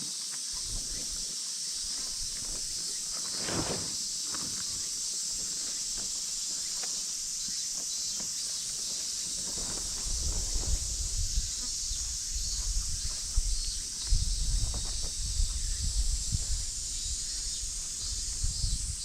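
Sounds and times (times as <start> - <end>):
insects chorus: 0.0 - 19.0
rustling: 2.4 - 7.1.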